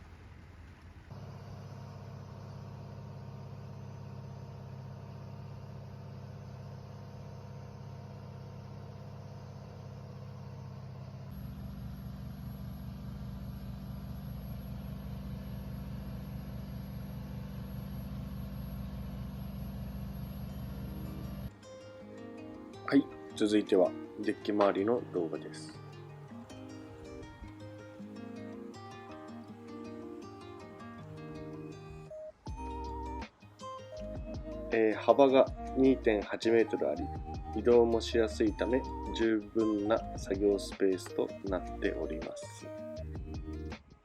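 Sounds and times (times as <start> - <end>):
boat diesel engine running: 0.0 - 21.5.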